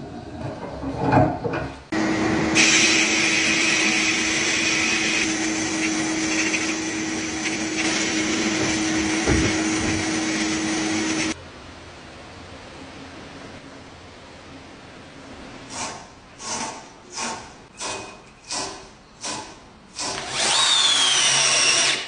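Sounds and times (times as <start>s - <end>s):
power tool humming and hissing: 2.0s - 11.4s.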